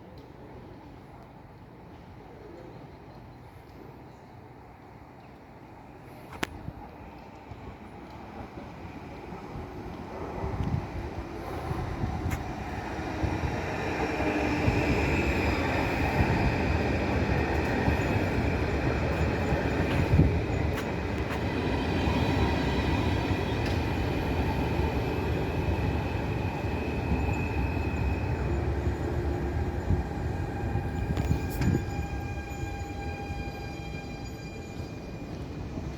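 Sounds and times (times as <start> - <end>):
train wheels rumbling on rails: 6.6 - 35.9
wheel squeal: 30.5 - 35.4.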